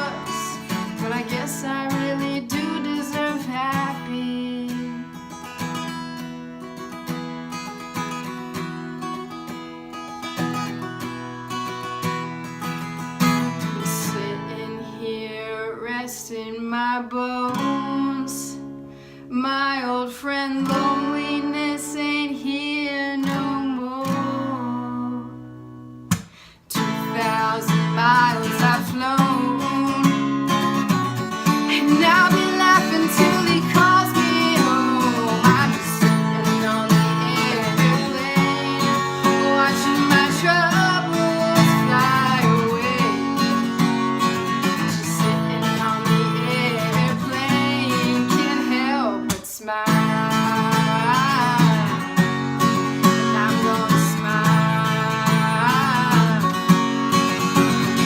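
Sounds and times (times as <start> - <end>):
person singing wordless melody: 0.0 - 5.2, 13.8 - 18.7, 26.7 - 30.8, 31.4 - 44.0, 44.6 - 52.1, 53.0 - 56.8
acoustic guitar strumming: 0.0 - 16.0, 16.7 - 58.0.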